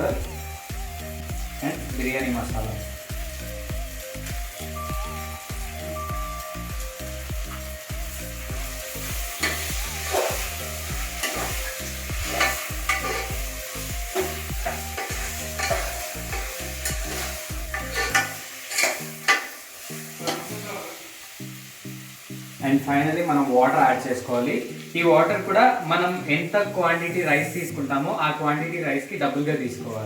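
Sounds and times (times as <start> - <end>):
background music beat: 0.0 - 27.8
vegetables sizzling in pan: 0.0 - 30.0
spatula scraping pan: 9.3 - 13.4, 14.1 - 20.8.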